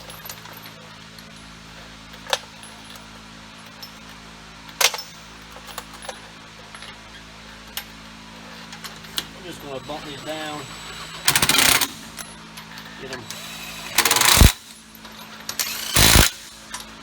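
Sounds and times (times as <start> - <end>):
steady low hum: 0.0 - 17.0
sharp metallic clacks: 13.9 - 14.6, 15.5 - 16.8.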